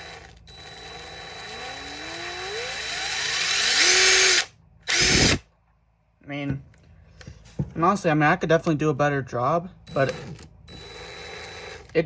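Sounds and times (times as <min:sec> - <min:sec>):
impact driver motor whine: 0:00.0 - 0:05.4, 0:09.9 - 0:12.0.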